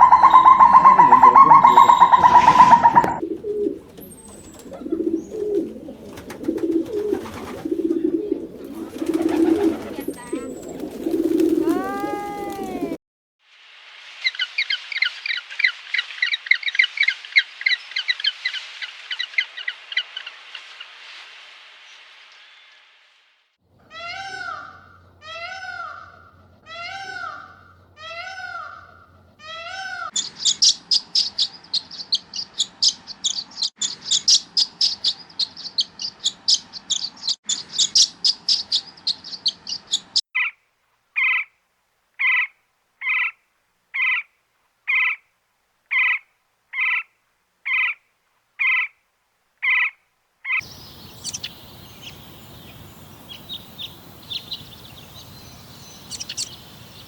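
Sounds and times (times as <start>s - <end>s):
short repeated bird call: 0.0s - 3.2s
birds chirping rapidly: 0.0s - 13.0s, 23.9s - 40.6s, 49.6s - 57.0s
steady outdoor hiss: 0.0s - 33.4s, 34.0s - 57.0s.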